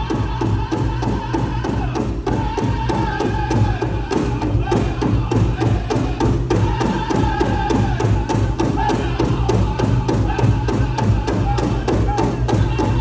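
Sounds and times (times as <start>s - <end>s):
big drum fast beat: 0.0s - 13.0s.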